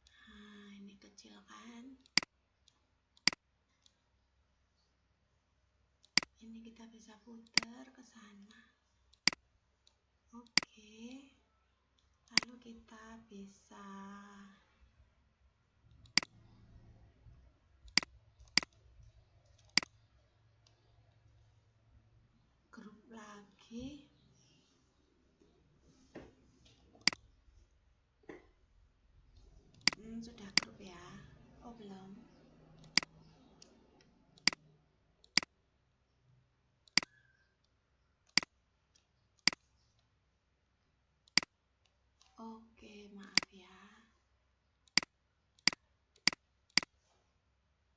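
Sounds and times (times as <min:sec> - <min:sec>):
computer mouse clicks: 0:02.0 - 0:04.0, 0:06.0 - 0:06.4, 0:07.4 - 0:07.8, 0:08.4 - 0:10.7, 0:12.0 - 0:12.6, 0:15.9 - 0:16.6, 0:17.8 - 0:21.4, 0:27.0 - 0:27.3, 0:29.4 - 0:30.8, 0:32.3 - 0:35.5, 0:36.8 - 0:40.1, 0:41.2 - 0:42.4, 0:43.2 - 0:43.5, 0:44.8 - 0:47.0
mouse button clicking: 0:29.8 - 0:30.8, 0:32.8 - 0:33.2, 0:34.4 - 0:34.6, 0:36.9 - 0:37.3.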